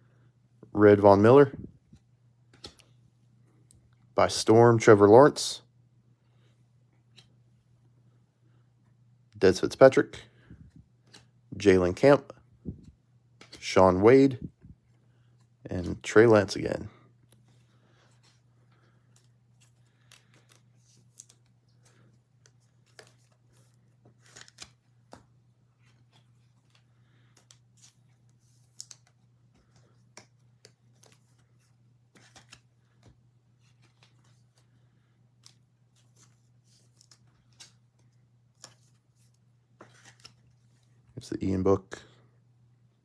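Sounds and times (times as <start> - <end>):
low steady hum: 0.0 - 43.0
trading cards clicking and rustling: 2.5 - 3.0, 11.0 - 11.3, 13.4 - 14.4, 15.3 - 41.0.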